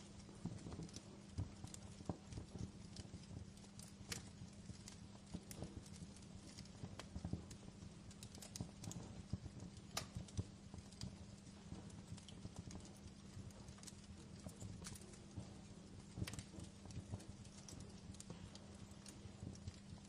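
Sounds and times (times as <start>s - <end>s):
fireplace fire crackling: 0.0s - 20.0s
soft low rumble: 0.0s - 20.0s.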